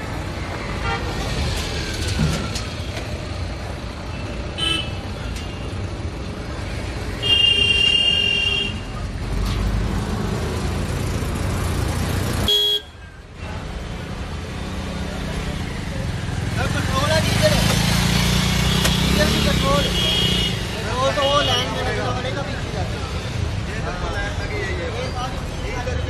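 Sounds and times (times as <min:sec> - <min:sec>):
traffic engines running: 0:00.0 - 0:26.0
vehicle horns honking: 0:07.2 - 0:08.9, 0:12.5 - 0:13.0, 0:18.6 - 0:21.8.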